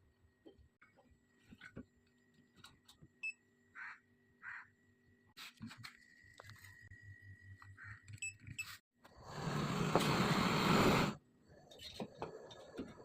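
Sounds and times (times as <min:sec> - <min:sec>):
gas hissing from valve: 0:09.2 - 0:11.2.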